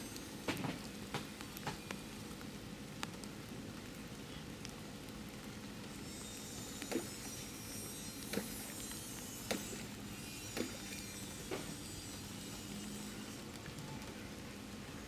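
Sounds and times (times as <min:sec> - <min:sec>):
steady rain falling: 0:00.0 - 0:15.0
sharp drips: 0:05.4 - 0:14.2.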